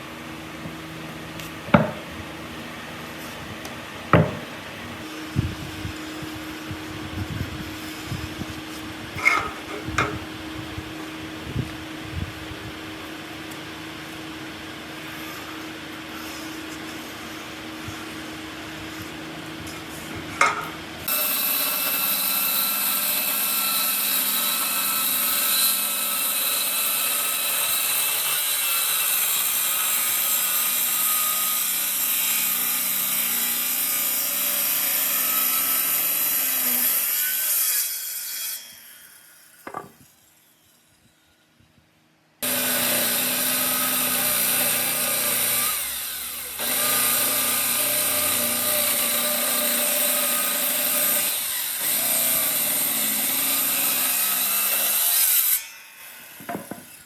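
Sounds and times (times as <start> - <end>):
power tool whining on wood: 13.5 - 41.4, 42.4 - 57.0.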